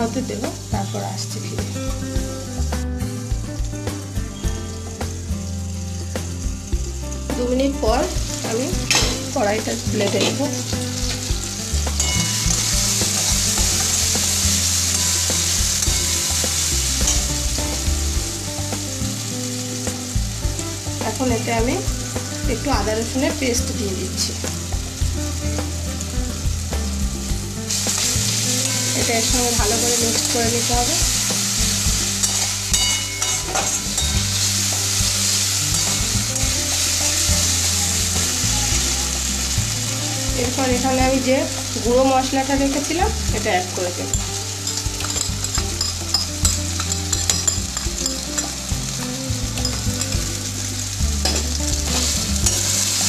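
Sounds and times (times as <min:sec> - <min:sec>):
onion and tomato sizzling: 0:00.0 - 0:53.0
spatula clinking on pan: 0:32.2 - 0:34.2, 0:44.1 - 0:48.6
metal spatula scraping a pan: 0:32.2 - 0:34.3.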